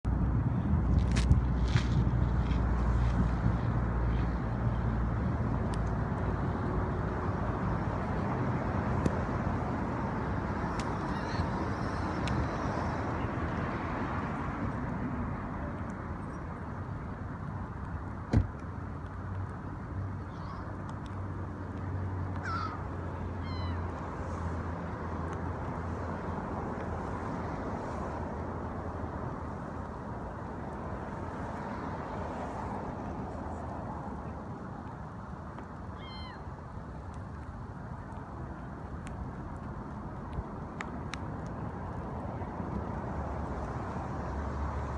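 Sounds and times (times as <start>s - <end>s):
gull calls: 22.4s - 22.8s, 23.4s - 23.9s, 36.0s - 36.4s.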